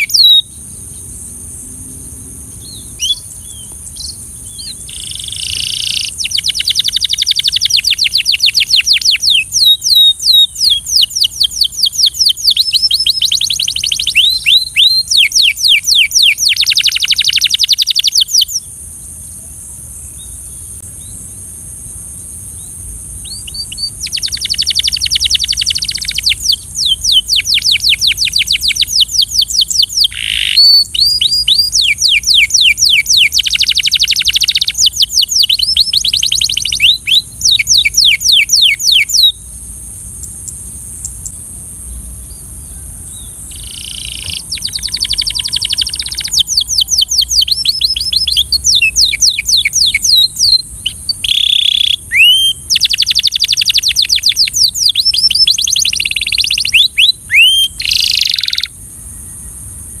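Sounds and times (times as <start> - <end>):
canary singing trills: 0.0 - 1.2, 1.9 - 21.3, 22.6 - 58.8
faint high hiss: 0.0 - 60.0.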